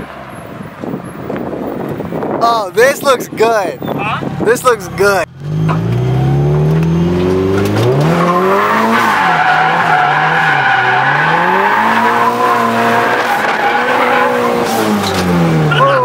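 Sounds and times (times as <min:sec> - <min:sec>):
car engine revving: 0:04.2 - 0:16.0
tyres squealing: 0:07.8 - 0:16.0.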